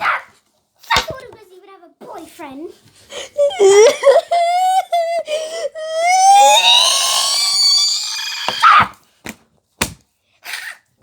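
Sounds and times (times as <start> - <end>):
child wailing and screaming: 3.2 - 9.0.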